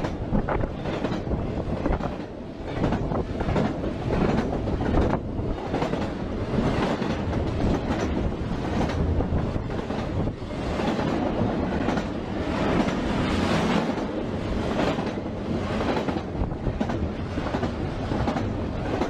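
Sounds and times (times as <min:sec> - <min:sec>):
freight train wheels rumbling: 0:00.0 - 0:19.0
wheels clacking over rail joints: 0:00.0 - 0:19.0.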